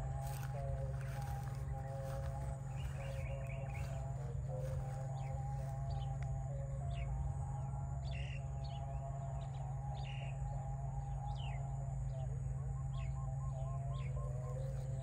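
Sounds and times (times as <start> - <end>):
small birds chirping: 0.0 - 6.1
steady low hum: 0.0 - 15.0.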